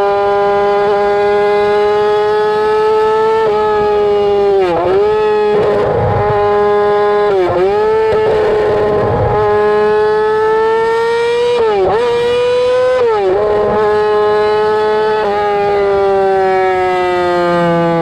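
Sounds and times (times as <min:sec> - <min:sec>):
motorcycle engine screaming: 0:10.9 - 0:18.0.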